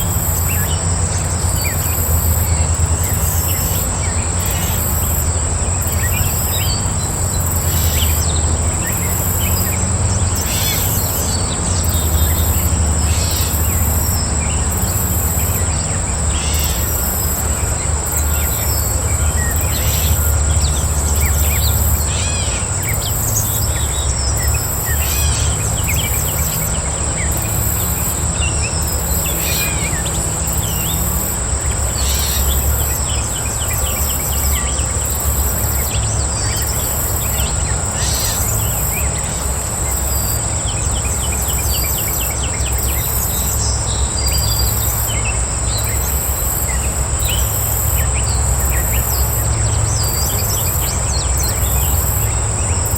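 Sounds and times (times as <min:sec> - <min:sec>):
birds chirping and calling: 0:00.0 - 0:52.9
high-pitched insect trill: 0:00.0 - 0:52.9
pulsing insect chirp: 0:00.0 - 0:52.9.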